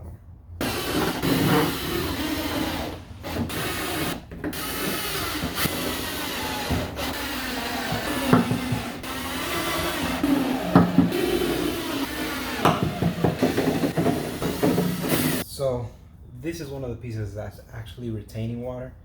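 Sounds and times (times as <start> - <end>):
power drill boring holes: 0.6 - 15.4.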